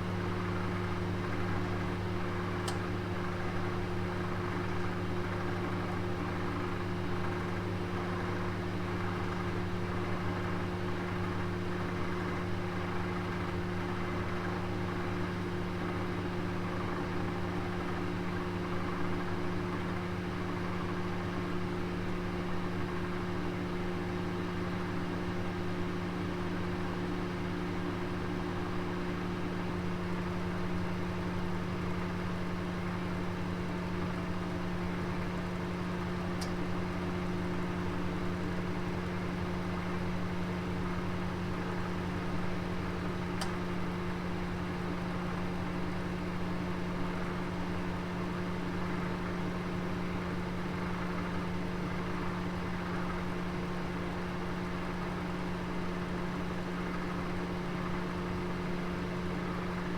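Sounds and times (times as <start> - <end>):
oven humming and rushing: 33.0 - 52.0.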